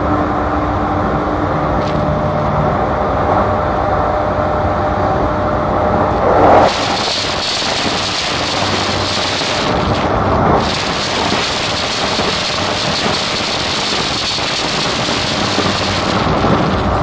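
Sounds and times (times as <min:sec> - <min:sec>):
train wheels roaring on rails: 0:00.0 - 0:17.0
rushing air: 0:04.1 - 0:17.0.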